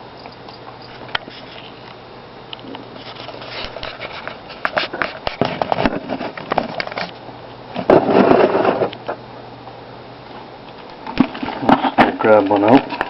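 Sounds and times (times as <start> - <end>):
crackly rustling: 2.6 - 9.2.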